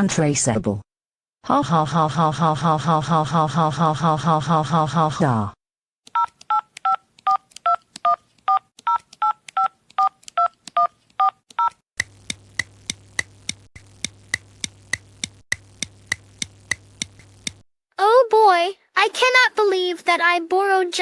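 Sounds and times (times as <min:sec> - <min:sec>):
telephone keypad dialing tones: 0:06.1 - 0:11.8
regular ticks: 0:06.1 - 0:17.6.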